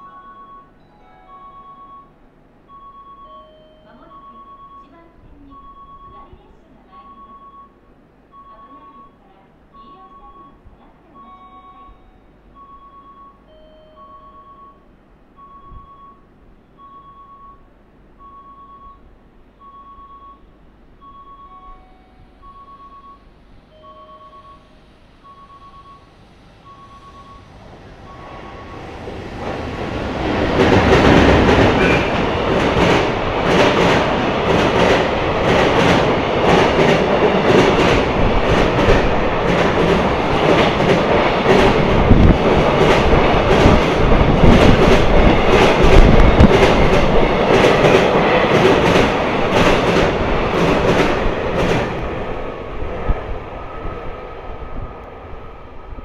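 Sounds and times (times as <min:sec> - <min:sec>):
faint repeating beep: 0:00.0 - 0:06.4, 0:07.0 - 0:29.0
freight train rolling past: 0:21.2 - 0:56.0
wheels clacking over rail joints: 0:28.2 - 0:52.5.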